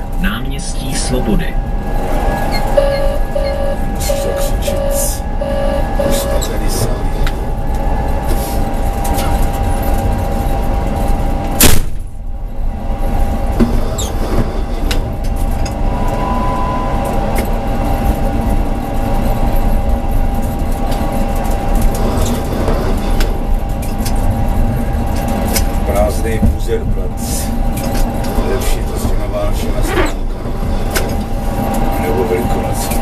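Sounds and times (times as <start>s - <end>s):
tram wheels rumbling on rails: 0.0s - 33.0s
thin steady tone: 2.7s - 6.9s
loud sharp bang: 11.6s - 12.1s.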